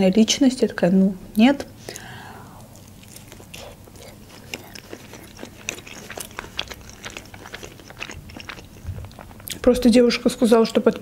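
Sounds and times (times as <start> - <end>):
chewing with wet mouth clicks: 1.9 - 9.9.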